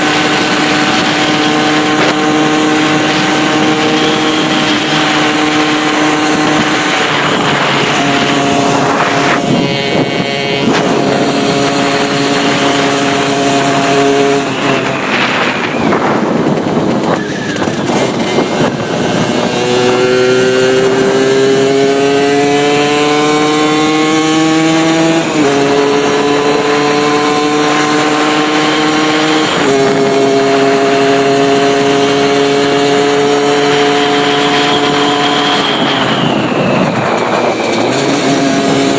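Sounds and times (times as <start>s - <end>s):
rushing wind noise: 0.0s - 38.9s
two-stroke motorcycle engine: 0.0s - 38.9s.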